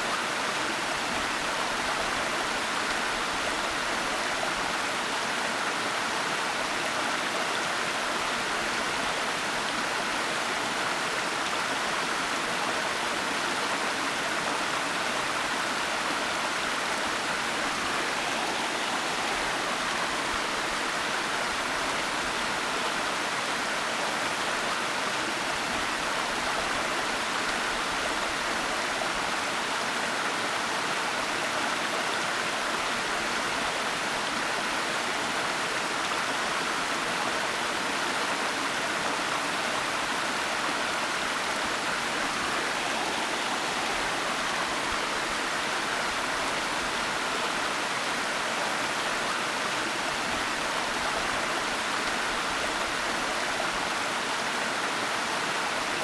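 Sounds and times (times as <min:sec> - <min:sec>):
waterfall rushing: 0:15.9 - 0:22.4, 0:39.2 - 0:54.4.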